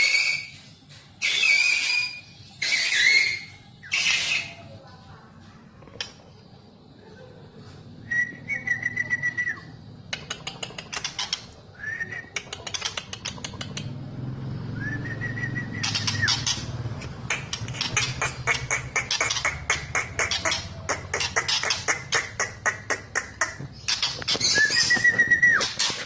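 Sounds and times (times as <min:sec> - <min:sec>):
bird whistles: 0:00.0 - 0:04.7, 0:08.1 - 0:09.7, 0:11.8 - 0:12.3, 0:14.8 - 0:16.5, 0:23.9 - 0:25.9
bird rapid clicking notes: 0:10.1 - 0:11.5, 0:12.3 - 0:13.9, 0:15.8 - 0:26.0.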